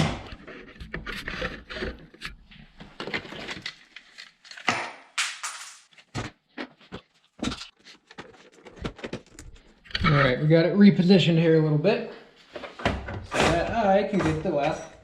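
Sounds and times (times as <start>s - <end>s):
tool clicks and scrapes on plastic: 0.2s - 2.4s.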